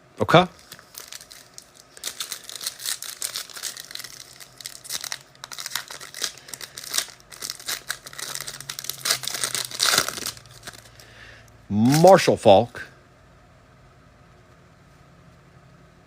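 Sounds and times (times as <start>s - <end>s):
card pack wrappers crinkling: 0.3s - 11.1s, 11.7s - 12.4s.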